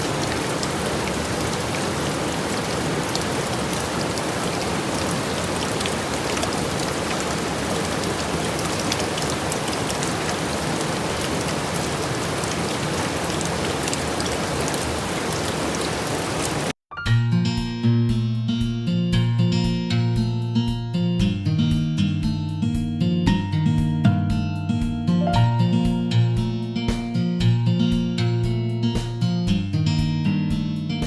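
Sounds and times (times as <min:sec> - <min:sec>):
steady rain falling: 0:00.0 - 0:16.8.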